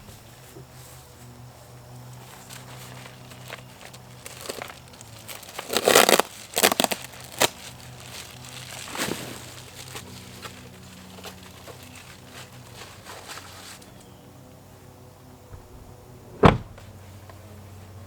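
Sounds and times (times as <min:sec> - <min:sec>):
rustling and crinkling: 0:00.0 - 0:14.1
faint low hum: 0:13.9 - 0:18.0.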